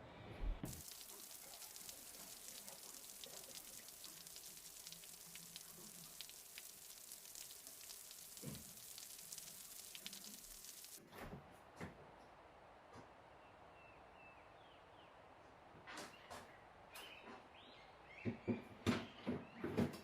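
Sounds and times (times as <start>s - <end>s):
food sizzling in a frying pan: 0.7s - 11.0s.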